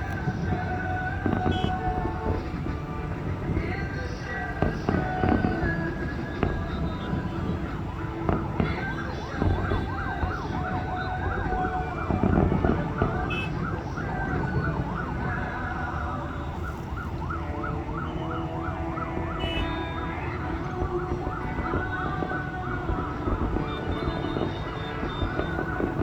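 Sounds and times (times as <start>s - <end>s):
firework burst: 0.0s - 15.8s, 19.2s - 26.0s
low firework rumble: 0.0s - 26.0s
warbling firework whistles: 19.2s - 26.0s.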